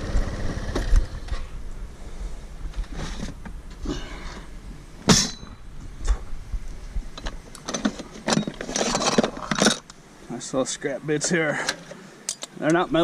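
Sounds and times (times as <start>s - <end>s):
scrap metal clattering: 7.7s - 9.9s.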